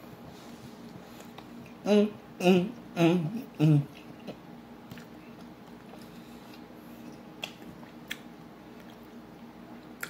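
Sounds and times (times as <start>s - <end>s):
mouth smacks while chewing: 4.2s - 9.2s.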